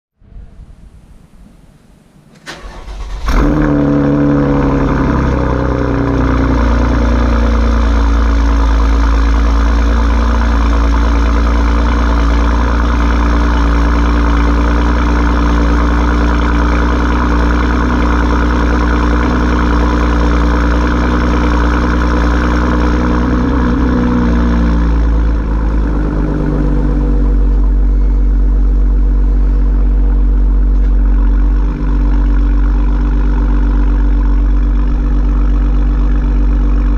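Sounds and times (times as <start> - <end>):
car engine starting and idling: 0.6 - 36.9.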